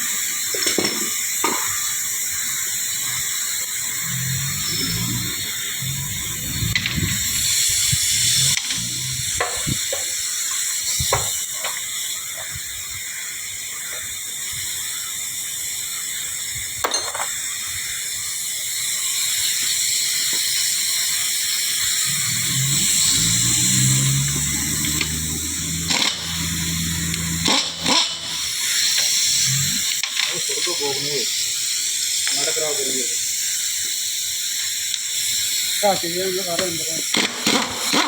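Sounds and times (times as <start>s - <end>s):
steady hiss: 0.0s - 16.7s, 17.6s - 38.0s
low rumble: 4.0s - 9.8s, 22.0s - 28.5s.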